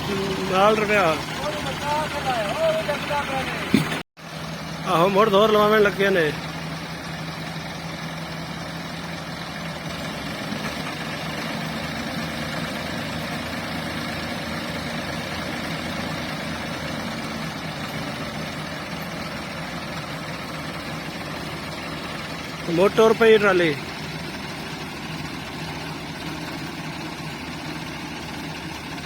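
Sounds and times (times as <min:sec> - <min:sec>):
tractor diesel engines under load: 0:00.0 - 0:29.0.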